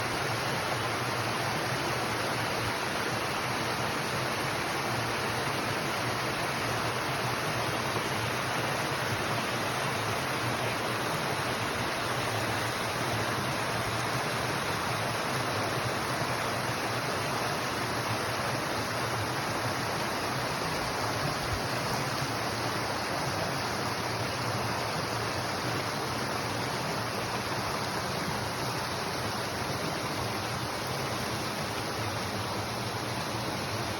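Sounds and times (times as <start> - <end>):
flowing water rushing: 0.0 - 33.9.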